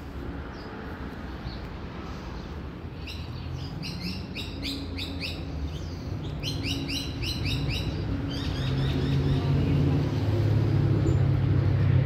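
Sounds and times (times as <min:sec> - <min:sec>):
small songbird chirping: 0:02.4 - 0:10.3.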